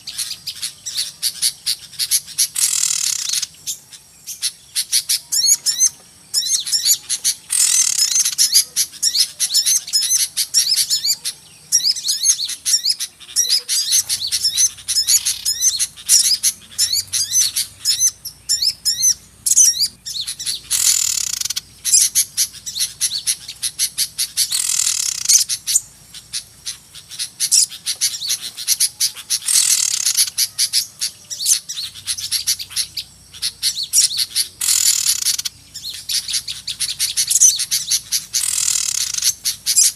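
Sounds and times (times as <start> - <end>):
flock of songbirds twittering: 0.0 - 39.9
harsh rasping bird calls: 0.0 - 39.9.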